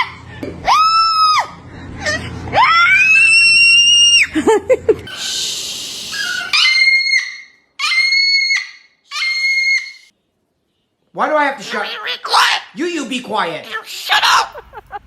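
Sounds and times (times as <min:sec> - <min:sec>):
cockatoo screeching: 0:05.1 - 0:10.1.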